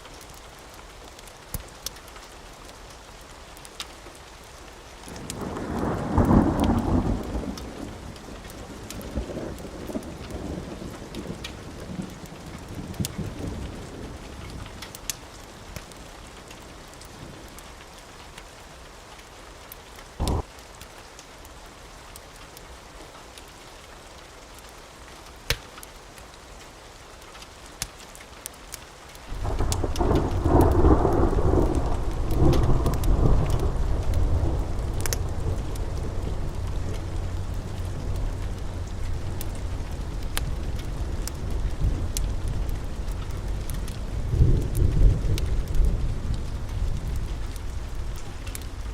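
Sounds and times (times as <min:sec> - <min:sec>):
sharp crackles: 0:00.0 - 0:21.3, 0:24.6 - 0:48.9
steady rain: 0:00.0 - 0:48.9
rolling thunder: 0:05.1 - 0:14.7, 0:20.2 - 0:20.5, 0:29.3 - 0:48.9.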